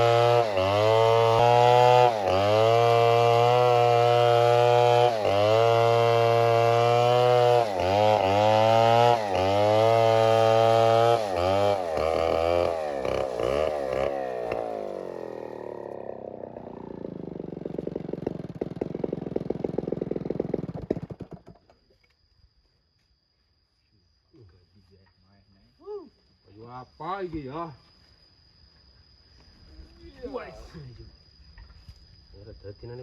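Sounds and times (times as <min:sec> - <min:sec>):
chainsaw running: 0:00.0 - 0:21.6.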